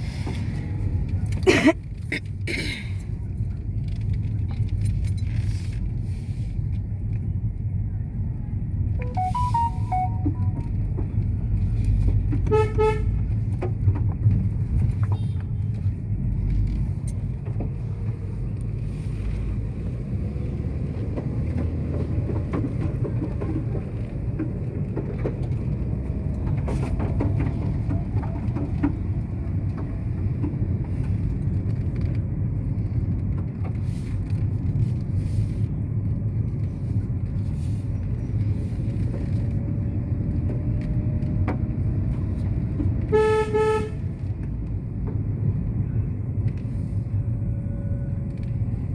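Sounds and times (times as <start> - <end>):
vehicle engine and road noise: 0.0 - 48.9
car horn beeps: 9.0 - 10.8, 12.5 - 13.2, 43.1 - 44.0.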